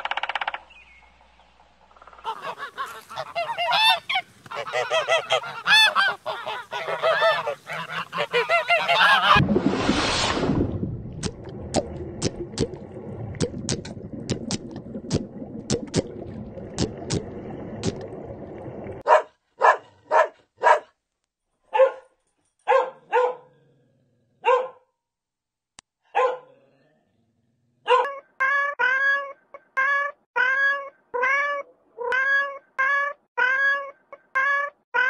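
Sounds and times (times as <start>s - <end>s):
puppy yipping: 27.9s - 29.2s.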